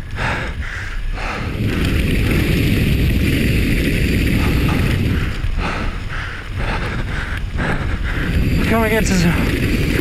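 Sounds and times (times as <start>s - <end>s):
rumbling bike tyre noise: 0.0s - 10.0s
wind rushing over microphone: 0.0s - 10.0s.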